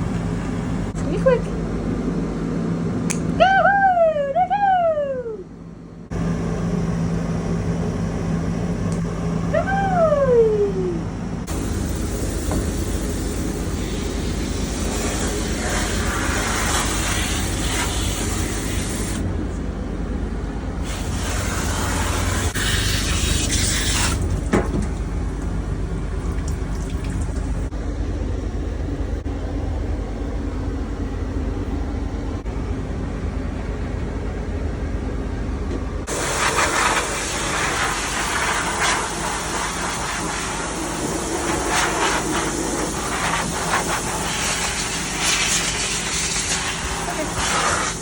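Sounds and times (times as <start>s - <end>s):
water spray hissing: 20.9s - 24.3s
steady low rumble: 24.2s - 47.3s.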